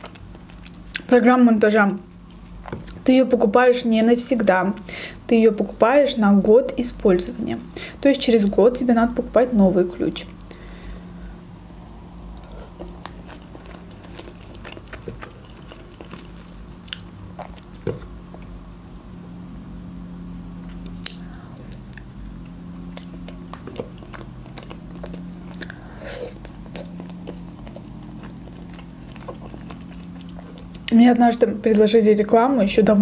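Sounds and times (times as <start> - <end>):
chewing and biting chicken: 0.0 - 1.1, 12.2 - 19.2, 19.8 - 31.2
faint low hum: 0.0 - 33.0
wet mouth clicks and smacks: 21.0 - 21.2.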